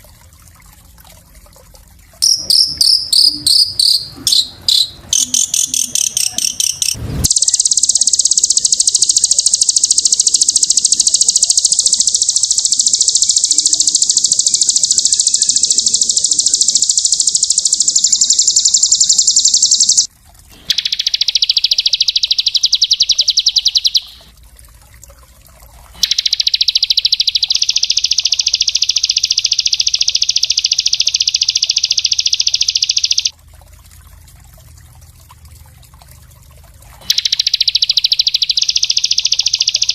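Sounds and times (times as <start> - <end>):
songbird high-pitched trills: 2.2 - 20.1, 20.7 - 24.2, 26.0 - 33.3, 37.0 - 39.9.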